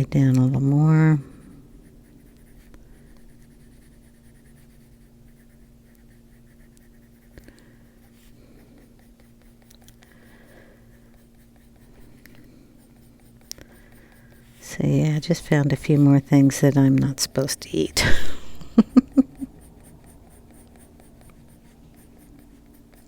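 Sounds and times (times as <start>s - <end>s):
steady low hum: 0.0s - 23.0s
pencil scratching on paper: 1.0s - 17.7s, 19.2s - 23.0s.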